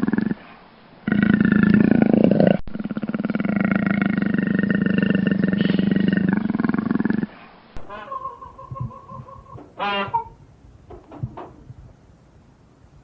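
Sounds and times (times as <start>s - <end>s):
large animal growling roar: 0.0s - 0.4s, 1.0s - 7.3s.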